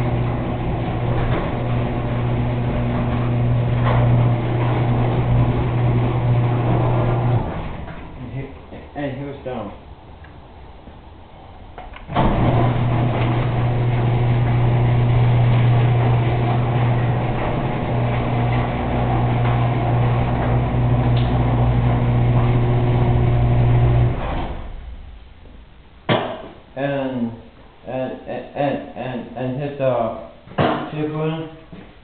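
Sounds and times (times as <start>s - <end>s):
garage door motor humming: 0.0s - 8.2s, 12.0s - 25.2s.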